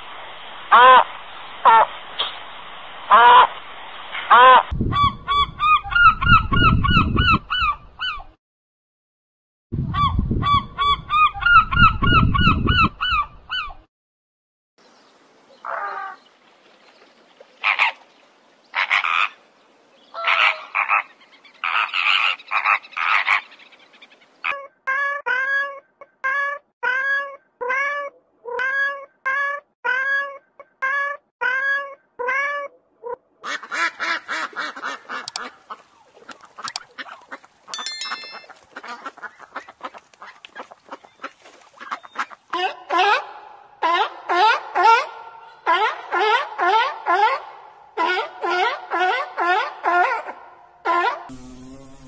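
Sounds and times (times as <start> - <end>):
ducks quacking: 33.4 - 37.8, 38.4 - 50.4.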